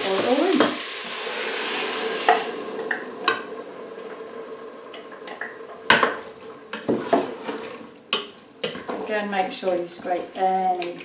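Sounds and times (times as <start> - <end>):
liquid simmering: 0.0 - 9.0
utensil stirring and scraping pot: 6.2 - 11.0.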